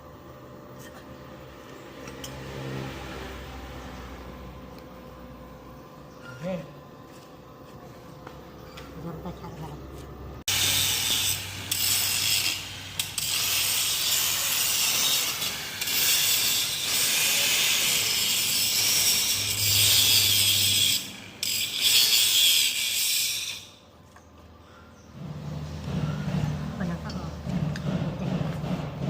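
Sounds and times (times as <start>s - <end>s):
hissing scraping tool noise: 10.4s - 23.8s, 24.6s - 29.0s.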